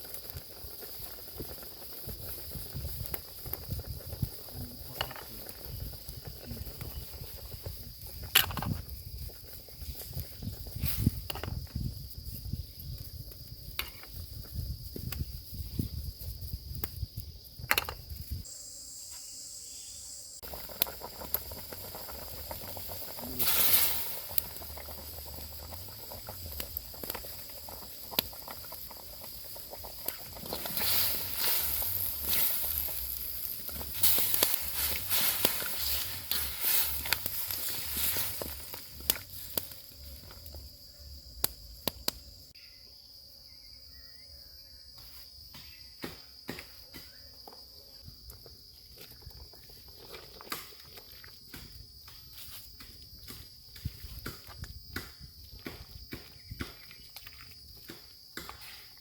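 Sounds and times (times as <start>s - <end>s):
high insect drone: 3.9s - 48.8s
sharp clicks and crackles: 26.2s - 40.6s
bursts of hissing: 30.4s - 40.1s.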